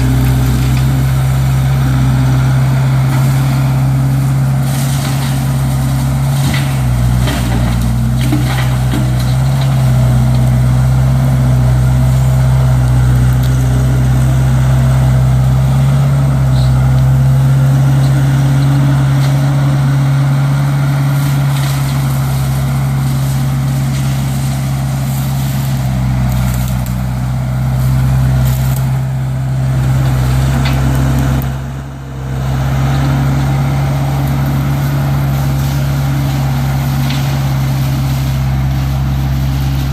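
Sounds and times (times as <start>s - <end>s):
diesel engine running: 0.0s - 39.9s
wood snapping and cracking: 3.0s - 14.8s, 21.0s - 31.6s, 33.5s - 39.9s
brush cutter cutting brush: 15.6s - 31.7s, 32.3s - 39.9s.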